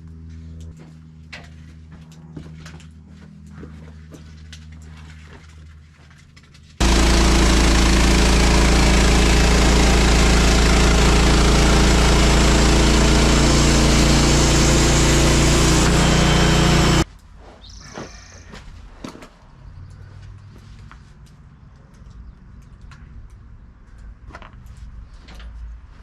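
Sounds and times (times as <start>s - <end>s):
gas engine running: 6.8s - 17.1s.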